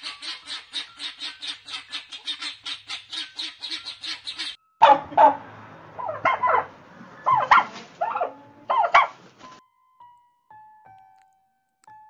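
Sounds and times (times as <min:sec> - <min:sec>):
guinea fowl calling harsh notes: 0:00.0 - 0:05.4, 0:06.0 - 0:09.2
turkey calls: 0:00.0 - 0:05.4, 0:06.0 - 0:09.2.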